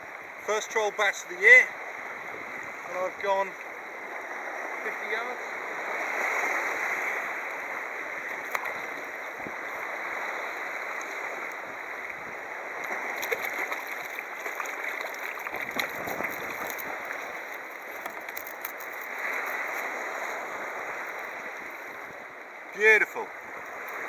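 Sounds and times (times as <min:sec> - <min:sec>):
water lapping against kayak hull: 0:00.0 - 0:24.0
small ticks and splashes: 0:06.1 - 0:22.2.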